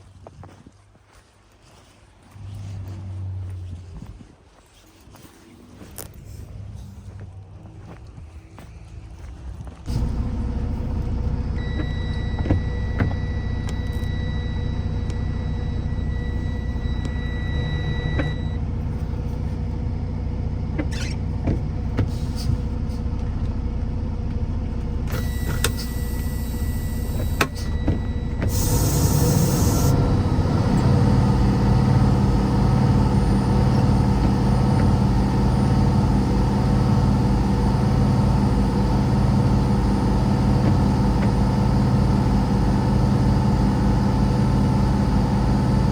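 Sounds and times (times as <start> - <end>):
vehicle engine rumbling: 2.2 - 45.9.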